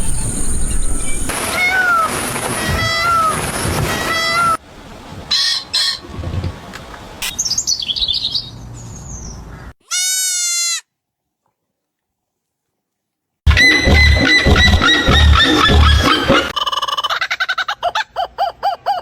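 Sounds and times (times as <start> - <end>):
bird chirps: 0.0 - 1.3
meow-like cries: 1.4 - 4.6, 9.9 - 10.8
drawn-out bleat-like call: 9.8 - 10.8
short high animal calls: 9.8 - 10.8.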